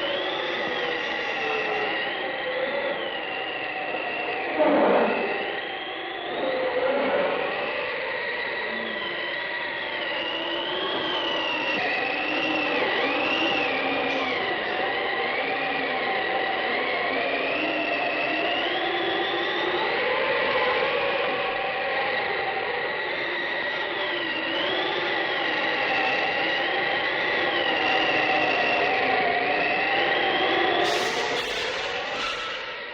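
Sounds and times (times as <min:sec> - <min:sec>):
high wavering ghostly wail: 0:30.8 - 0:32.9.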